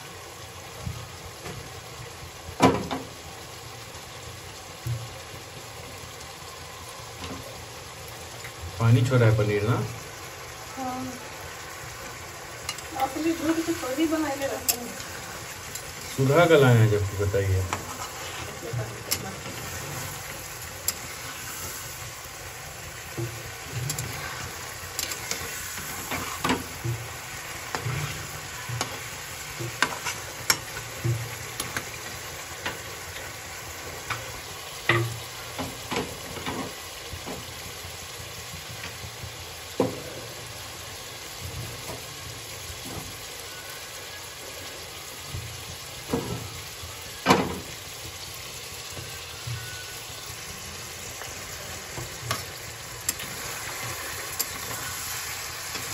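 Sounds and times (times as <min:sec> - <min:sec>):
cheese sizzling in oil: 0:00.0 - 0:55.9
steel spatula scraping pan: 0:17.0 - 0:22.1, 0:23.2 - 0:31.8.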